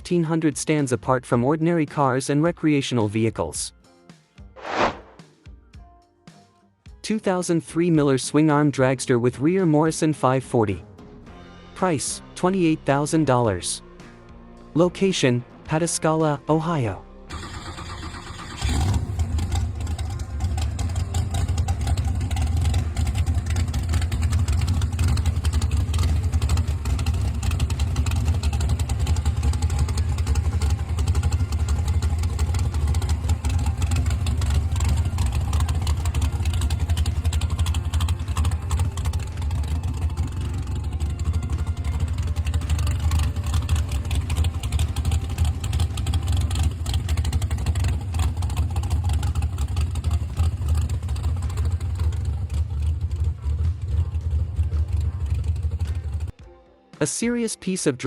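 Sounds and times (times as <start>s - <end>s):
engine rough rumble: 17.3s - 56.4s.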